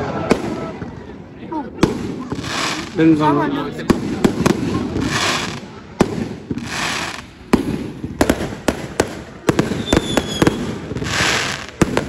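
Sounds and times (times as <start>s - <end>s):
fireworks exploding: 0.0s - 12.0s
hissing rush: 2.0s - 3.4s, 4.6s - 5.9s
high firework whistle: 9.6s - 11.7s.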